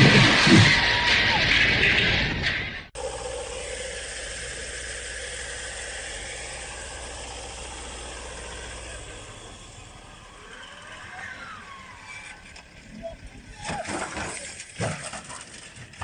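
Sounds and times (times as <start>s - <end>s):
road noise: 0.0s - 16.0s
vehicle engine running: 1.5s - 13.5s.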